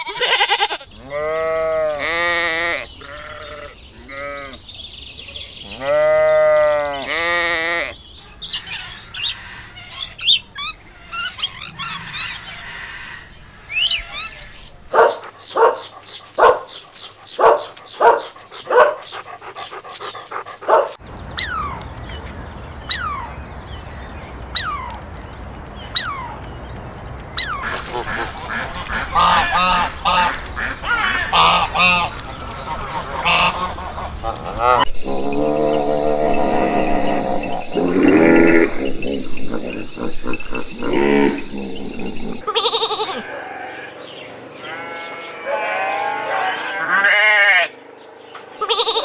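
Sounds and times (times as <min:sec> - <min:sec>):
loud bird calls: 0:00.0 - 0:45.3
high bird chirping: 0:14.4 - 0:34.8
falling whistled bird calls: 0:21.1 - 0:34.2.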